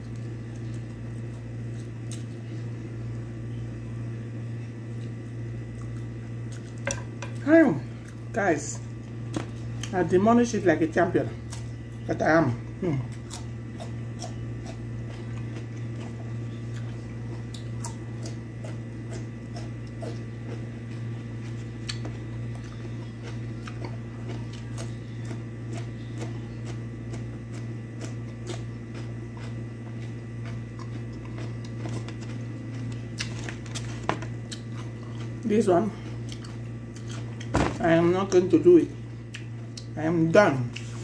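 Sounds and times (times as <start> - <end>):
steady low hum: 0.0 - 41.0
chewing and biting cucumber: 11.4 - 37.6, 39.2 - 41.0.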